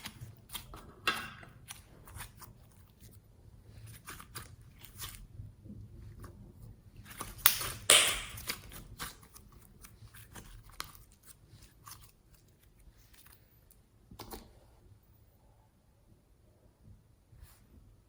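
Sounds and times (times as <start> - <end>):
slime clicking and crackling: 7.5 - 8.6.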